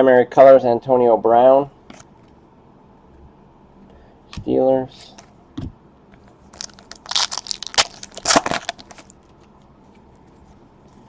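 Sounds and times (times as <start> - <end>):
card packaging crinkling: 6.5 - 9.5.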